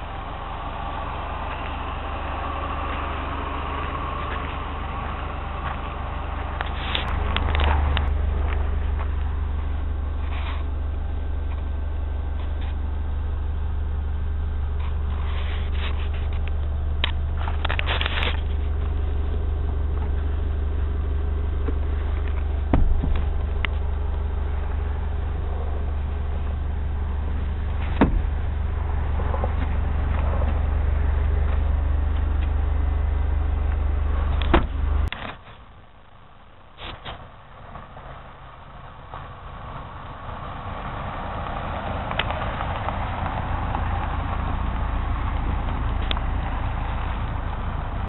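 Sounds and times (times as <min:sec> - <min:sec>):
car engine idling: 0:00.0 - 0:48.0
rustling: 0:06.6 - 0:11.7, 0:14.8 - 0:36.2.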